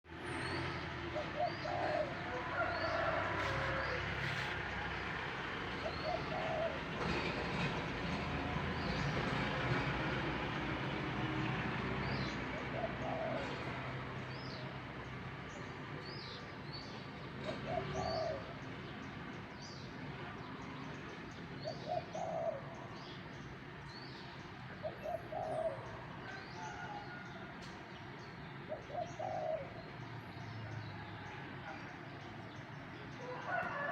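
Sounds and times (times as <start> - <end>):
dove cooing: 1.1 - 4.5, 5.8 - 7.2, 12.6 - 13.8, 17.5 - 18.6, 21.6 - 22.8, 24.8 - 26.0, 28.7 - 29.8.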